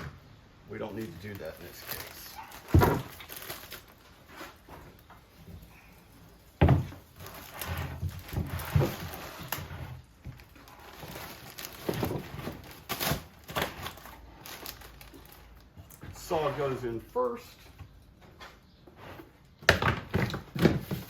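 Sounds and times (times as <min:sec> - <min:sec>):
plastic crinkling: 0:00.7 - 0:16.3.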